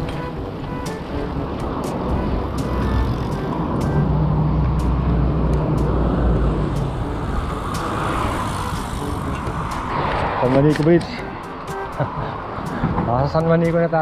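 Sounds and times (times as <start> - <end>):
motor vehicle passing: 0.0 - 13.1
wind rumble: 0.0 - 13.5
road traffic noise: 0.0 - 14.0
bicycle rolling: 6.9 - 11.0.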